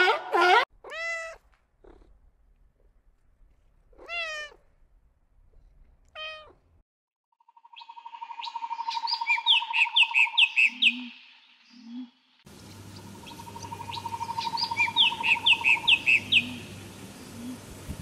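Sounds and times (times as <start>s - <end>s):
cat meowing: 0.8s - 2.1s, 3.9s - 4.7s, 6.1s - 6.6s
birds chirping: 7.5s - 17.6s.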